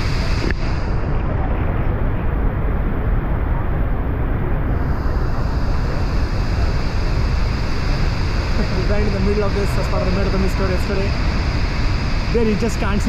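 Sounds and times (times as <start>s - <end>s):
waterfall roaring: 6.4s - 13.0s.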